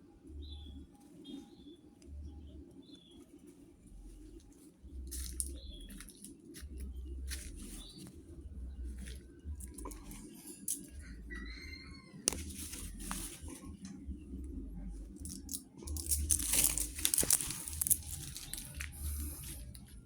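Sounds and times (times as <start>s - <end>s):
low rumble: 3.9s - 20.0s
sharp clicks and crunching: 4.0s - 11.6s, 12.3s - 20.0s.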